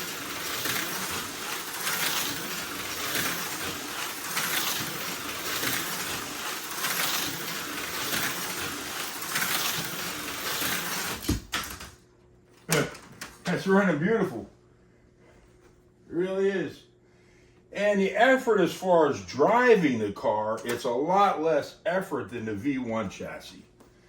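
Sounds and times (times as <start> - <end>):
slot car motor hiss: 0.0 - 11.3.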